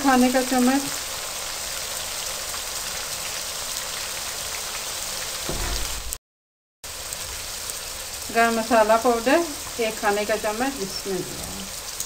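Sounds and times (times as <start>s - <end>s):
chicken sizzling in hot oil: 0.0s - 6.1s, 6.8s - 12.0s
low thud: 5.5s - 6.2s.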